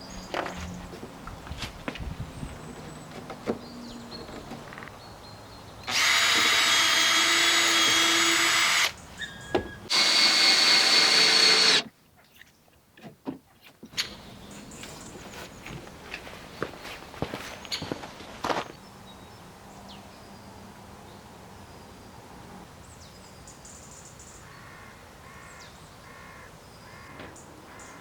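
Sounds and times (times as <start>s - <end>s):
power tool motor whining: 5.9s - 11.9s.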